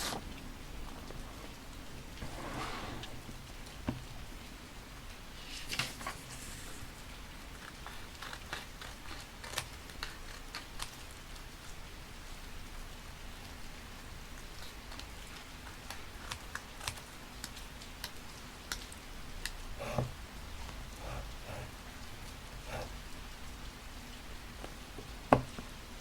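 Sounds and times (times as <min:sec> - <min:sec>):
rain: 0:00.0 - 0:26.0
paper and stickers crinkling: 0:05.4 - 0:06.9.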